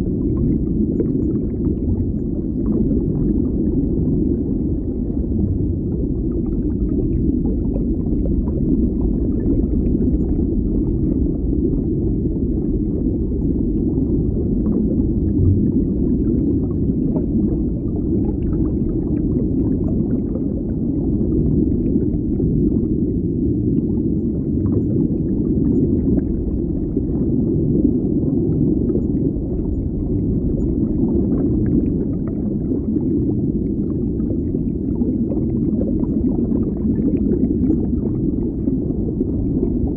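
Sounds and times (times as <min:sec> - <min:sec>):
muffled underwater rumble: 0:00.0 - 0:39.9
faint bubbling ticks: 0:00.1 - 0:04.3, 0:05.4 - 0:12.0, 0:28.4 - 0:39.9.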